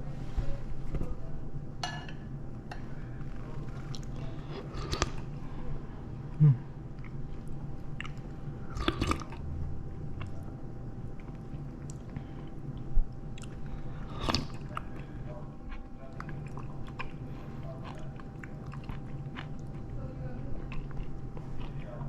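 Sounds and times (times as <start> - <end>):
steady low hum: 0.0 - 22.0
person chewing: 3.6 - 5.4, 6.3 - 22.0.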